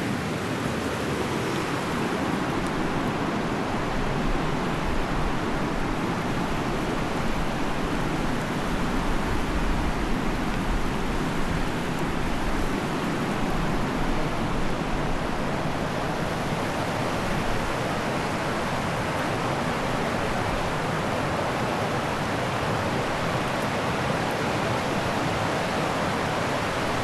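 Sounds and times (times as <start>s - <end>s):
mountain river rushing: 0.0s - 27.0s.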